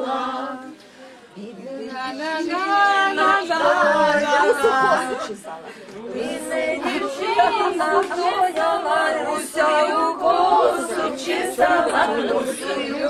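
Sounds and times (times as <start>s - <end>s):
children singing in chorus: 0.0s - 0.8s, 6.0s - 13.0s.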